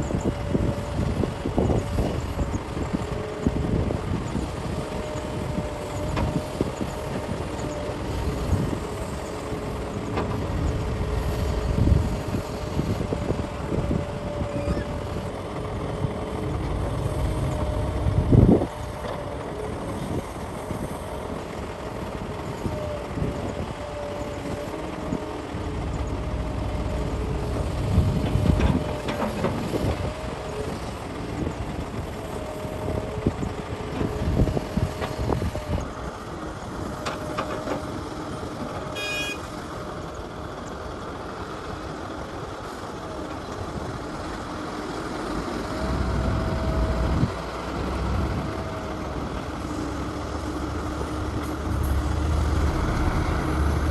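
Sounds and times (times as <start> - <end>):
excavator diesel engine running: 0.0 - 53.9
hydraulic whine: 10.2 - 15.3, 39.0 - 39.4, 45.8 - 53.9.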